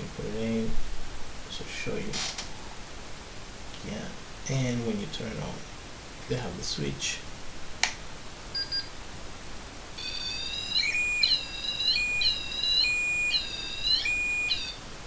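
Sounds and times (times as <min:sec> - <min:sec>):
switch click: 0:07.8 - 0:08.0
steady flat beep: 0:08.6 - 0:08.9, 0:10.0 - 0:14.8
electronic alarm warbling tones: 0:10.0 - 0:14.8.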